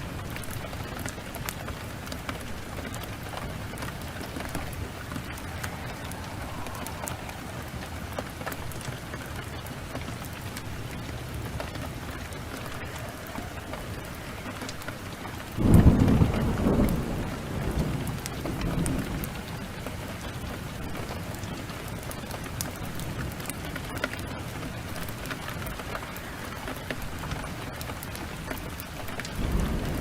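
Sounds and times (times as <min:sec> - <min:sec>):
thunder rumbling: 0:00.0 - 0:22.0, 0:26.0 - 0:30.0
heavy rain: 0:00.0 - 0:30.0.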